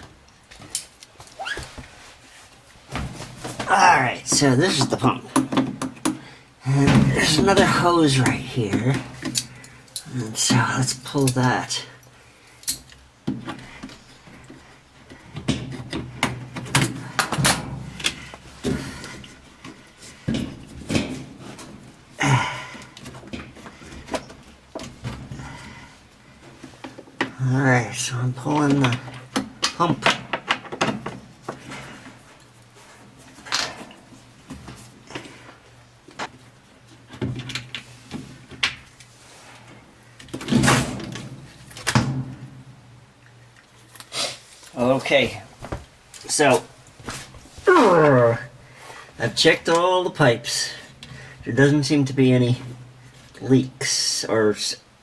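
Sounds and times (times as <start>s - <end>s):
knocks and clunks of hands working: 2.9s - 9.5s, 13.2s - 25.8s, 28.5s - 31.9s.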